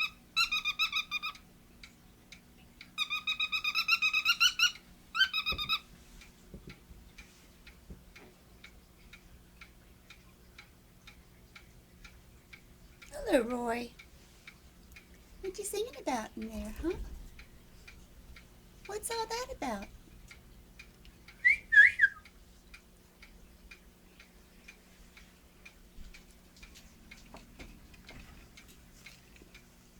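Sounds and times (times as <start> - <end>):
cockatiel squeaky chirps: 0.0 - 1.4, 3.0 - 5.8
clock ticking faintly: 0.0 - 29.9
cockatiel whistled chirps: 21.4 - 22.2.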